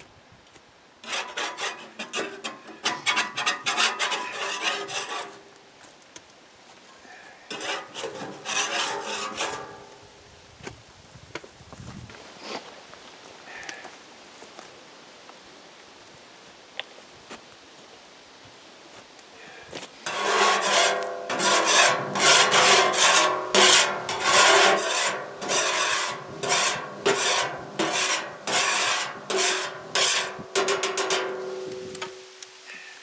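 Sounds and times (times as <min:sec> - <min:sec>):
rasping scraping strokes: 0:01.0 - 0:05.5, 0:07.5 - 0:10.0, 0:20.0 - 0:32.2.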